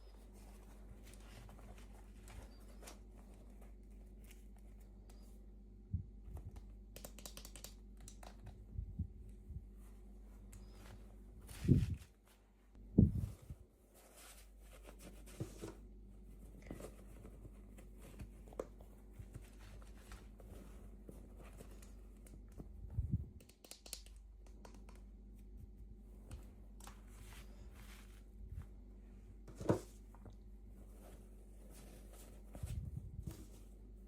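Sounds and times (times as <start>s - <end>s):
small plastic clicks: 23.4s - 25.0s.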